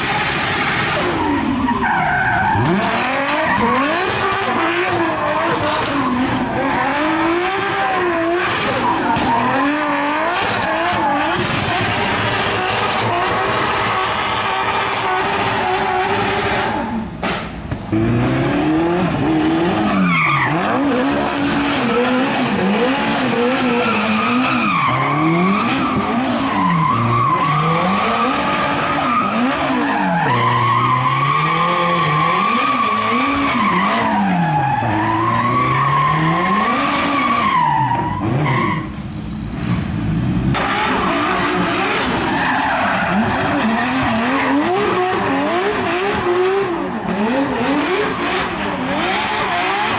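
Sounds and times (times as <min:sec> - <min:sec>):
car engine revving: 0:00.0 - 0:38.7, 0:39.5 - 0:49.9
tyre squeal: 0:21.7 - 0:39.4, 0:47.2 - 0:49.9.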